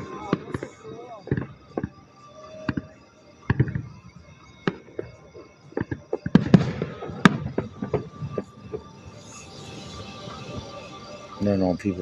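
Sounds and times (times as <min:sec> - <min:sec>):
fireworks bangs and crackles: 0:00.0 - 0:02.0, 0:04.6 - 0:08.9.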